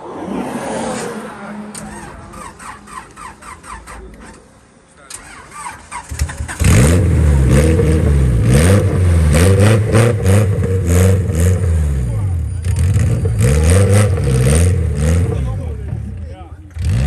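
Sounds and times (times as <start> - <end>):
voices: 0.0 - 6.7, 11.5 - 17.0
drag car engine revving: 0.0 - 17.0.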